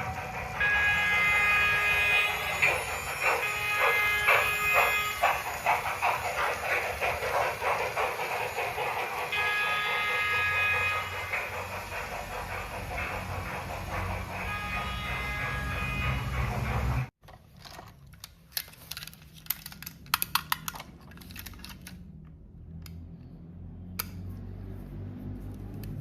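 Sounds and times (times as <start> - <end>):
steam whistle chord: 0.0 - 5.5, 9.3 - 11.6, 14.3 - 16.6
steam locomotive exhaust chuffs: 0.0 - 17.2.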